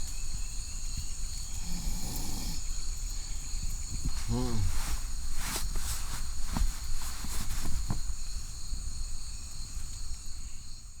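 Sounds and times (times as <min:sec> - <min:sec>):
insects trilling: 0:00.0 - 0:07.1.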